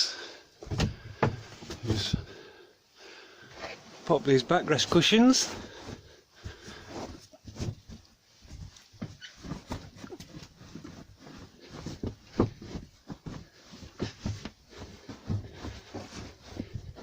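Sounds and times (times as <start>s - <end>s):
cushions thumping and rustling: 5.4s - 17.0s.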